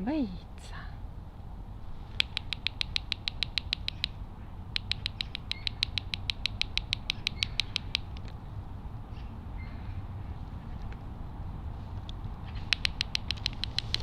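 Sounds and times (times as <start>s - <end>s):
rapid sharp clicks: 2.2s - 4.2s, 4.8s - 8.4s, 12.6s - 14.0s.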